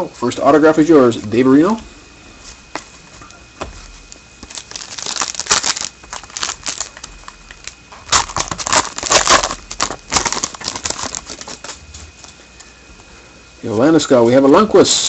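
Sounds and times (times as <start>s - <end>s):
foil wrapper tearing and crinkling: 4.0s - 11.8s.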